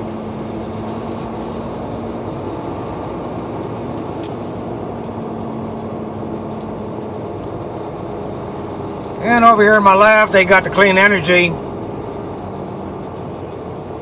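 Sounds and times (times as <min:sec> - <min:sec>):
truck diesel engine running: 0:00.0 - 0:14.0
brief hiss: 0:04.1 - 0:04.7.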